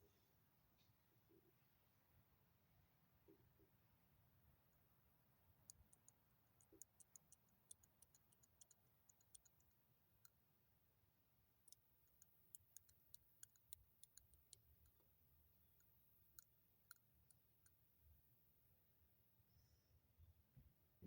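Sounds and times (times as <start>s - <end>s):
ticks and scratches of hand work: 5.6s - 10.4s, 11.6s - 18.2s.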